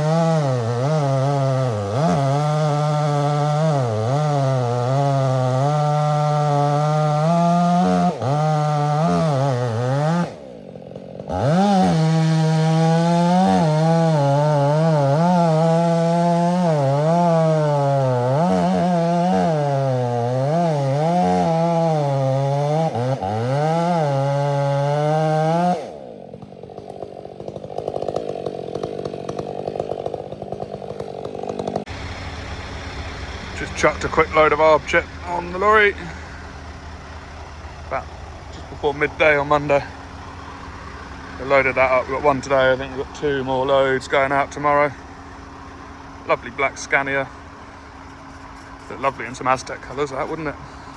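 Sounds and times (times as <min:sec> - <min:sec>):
chainsaw cutting wood: 0:00.0 - 0:50.9
low engine idling: 0:26.0 - 0:50.9.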